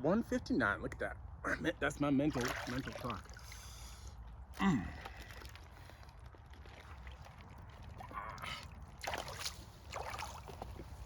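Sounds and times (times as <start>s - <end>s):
water sloshing and splashing: 2.2s - 11.0s.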